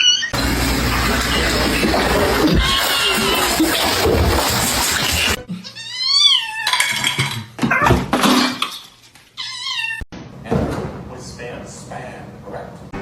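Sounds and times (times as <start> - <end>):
cat meowing: 2.5 - 3.9
clattering or rustling: 6.6 - 9.3.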